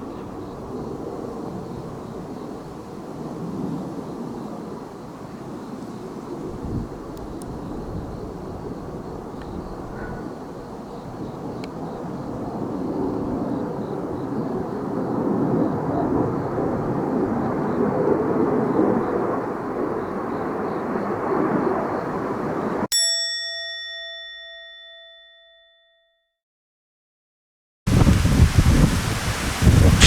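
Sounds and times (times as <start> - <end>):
wind buffeting microphone: 0.0 - 22.9, 27.9 - 30.0
military aircraft engine: 7.1 - 22.8.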